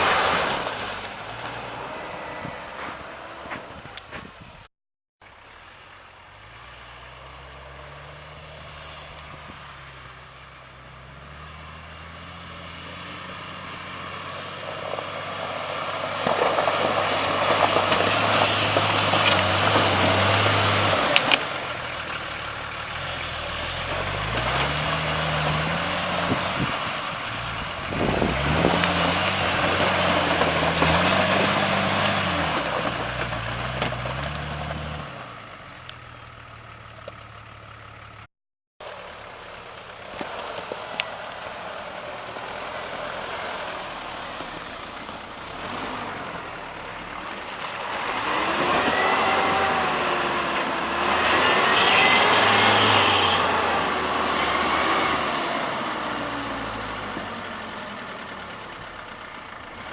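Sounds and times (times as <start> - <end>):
vehicle engine revving: 0.0 - 4.3, 6.3 - 59.9.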